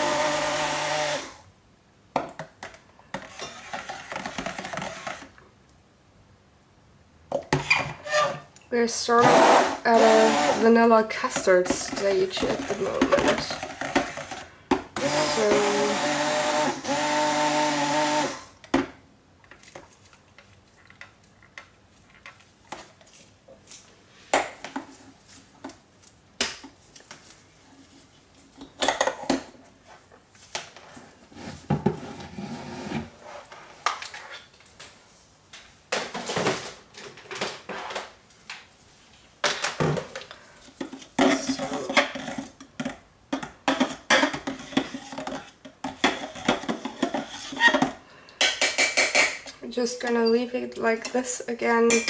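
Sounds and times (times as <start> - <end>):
stick blender running: 0.0 - 1.4, 9.2 - 10.6, 15.0 - 18.5
utensil scraping crock pot: 10.0 - 14.4.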